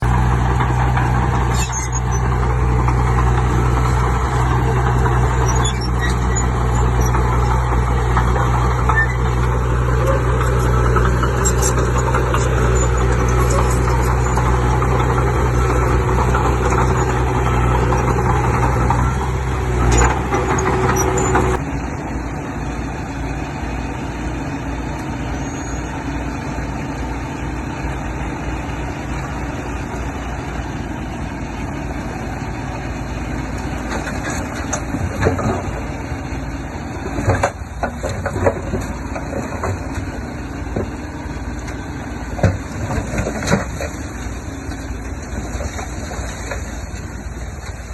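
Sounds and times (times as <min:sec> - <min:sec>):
heavy machinery diesel engine: 0:00.0 - 0:47.9.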